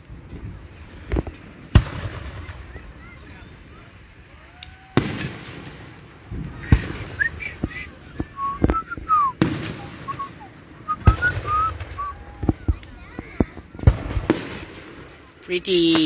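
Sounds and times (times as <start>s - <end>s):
firework whistles: 1.1s - 12.7s.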